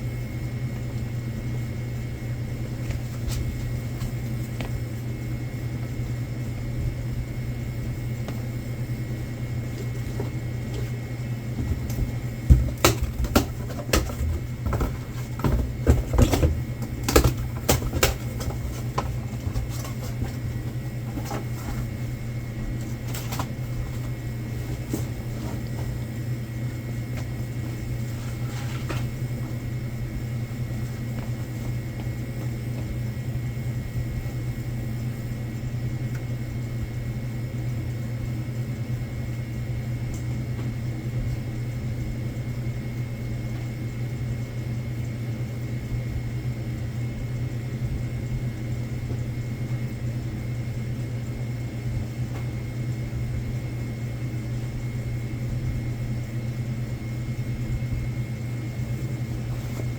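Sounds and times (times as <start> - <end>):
low machine hum: 0.0 - 59.9
boxes clattering: 11.6 - 22.0.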